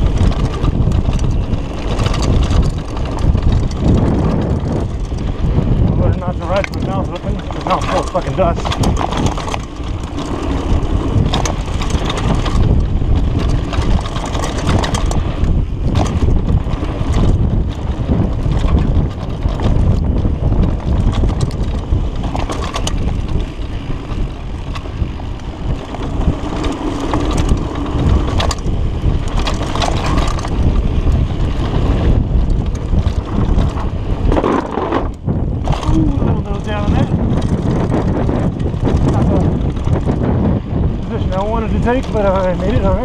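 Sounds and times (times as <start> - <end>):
bike knocks and rattles: 0.0 - 43.0
tyre roar on dirt: 0.0 - 43.0
wind buffeting microphone: 0.0 - 43.0.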